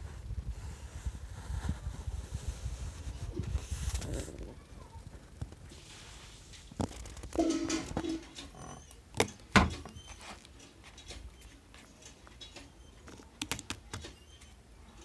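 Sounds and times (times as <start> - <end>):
pitched squeak: 8.2 - 9.0, 9.8 - 10.4.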